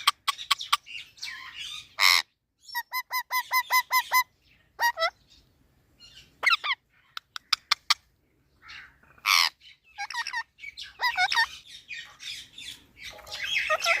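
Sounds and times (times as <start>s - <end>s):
parrot squawking and screeching: 0.0s - 5.2s, 6.4s - 8.0s, 8.6s - 14.0s.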